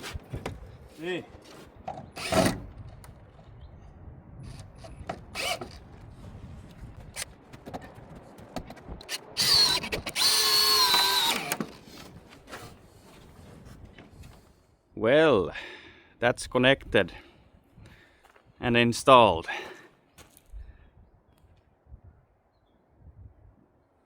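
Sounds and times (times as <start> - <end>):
power drill whine: 2.2 - 2.6, 5.4 - 5.8, 9.1 - 11.7.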